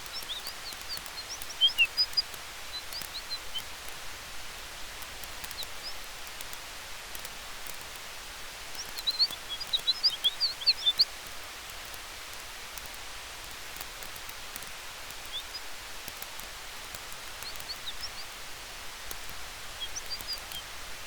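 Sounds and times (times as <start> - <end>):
bird chirping: 0.0 - 3.9, 5.2 - 6.1, 8.7 - 11.2, 15.1 - 18.4, 19.0 - 20.8
campfire hissing: 0.0 - 21.0
fire crackles: 0.0 - 21.0.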